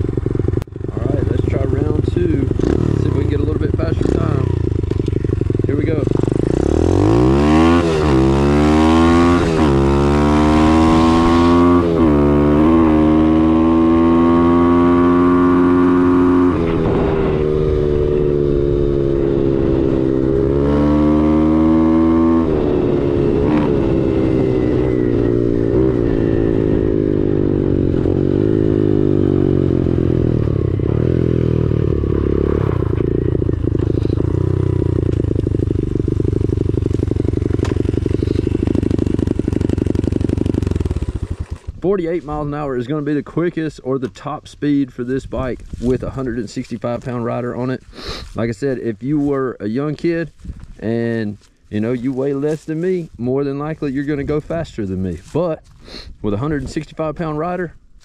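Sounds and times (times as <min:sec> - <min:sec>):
motorbike engine revving through gears: 0:00.0 - 0:41.8.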